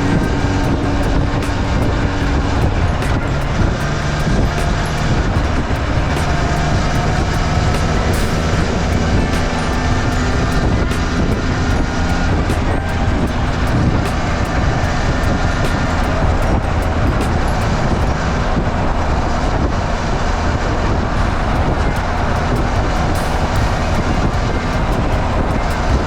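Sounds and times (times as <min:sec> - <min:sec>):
two-stroke motorcycle engine running: 0:00.0 - 0:18.2.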